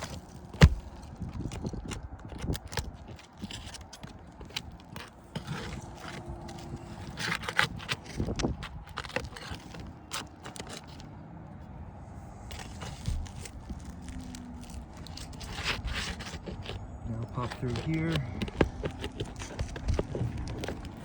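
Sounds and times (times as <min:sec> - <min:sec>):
tool scraping shingles: 0:00.0 - 0:11.1, 0:12.4 - 0:21.0
sharp clicks and knocks: 0:14.9 - 0:21.0.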